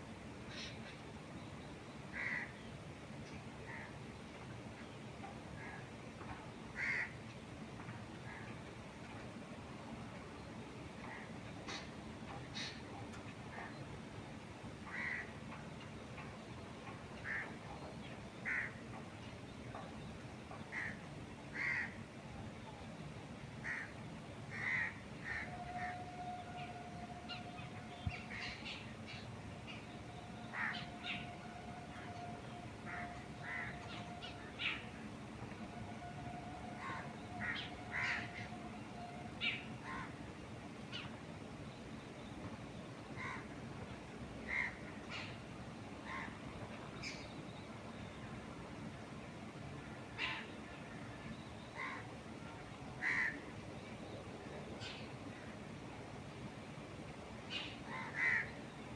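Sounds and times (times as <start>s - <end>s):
wind: 0.0s - 58.9s
birds calling: 23.6s - 48.6s.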